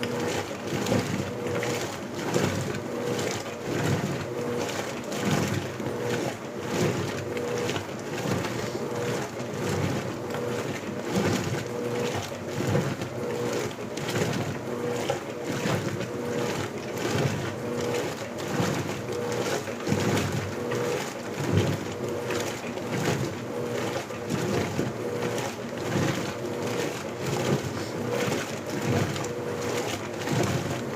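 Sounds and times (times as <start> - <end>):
washing machine motor hum: 0.0 - 30.9
water sloshing in washing machine: 0.0 - 30.9.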